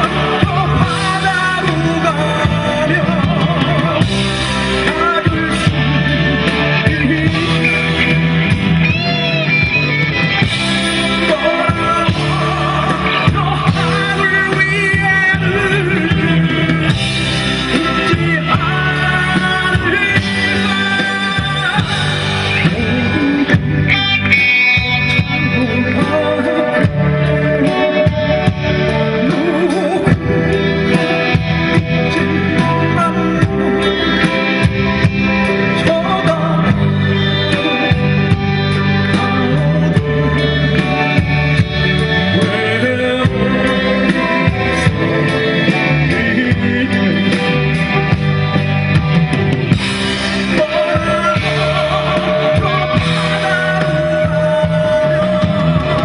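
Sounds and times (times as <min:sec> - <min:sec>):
person singing: 0:00.0 - 0:49.2, 0:50.0 - 0:56.0
drums: 0:00.0 - 0:56.0
electric guitar: 0:00.0 - 0:56.0.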